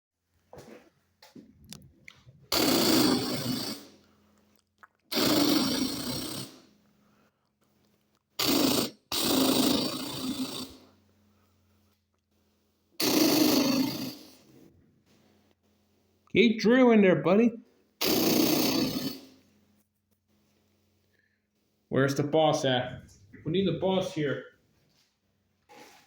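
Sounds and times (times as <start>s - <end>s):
person making machine noises: 2.4s - 7.3s, 8.2s - 11.0s, 13.0s - 14.5s, 18.0s - 19.5s.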